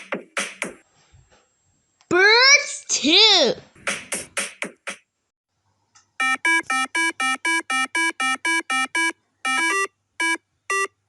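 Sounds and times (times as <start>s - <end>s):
short electronic beeps: 6.2s - 10.9s.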